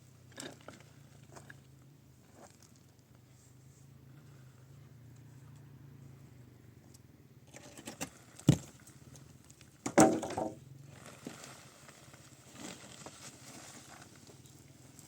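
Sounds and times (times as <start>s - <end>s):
knocks and clatters: 9.8s - 10.6s.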